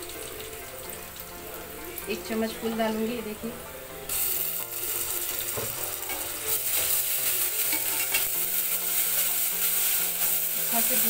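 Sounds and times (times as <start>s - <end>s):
paste sizzling in hot oil: 4.1s - 11.0s.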